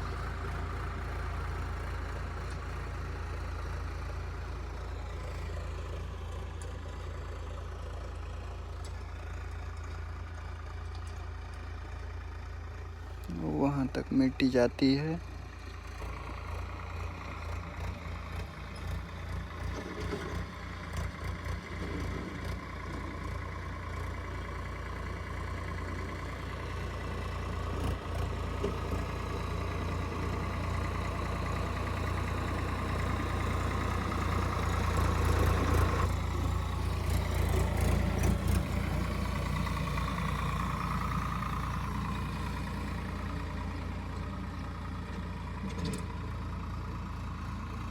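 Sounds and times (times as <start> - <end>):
diesel tractor engine running: 0.0 - 47.9.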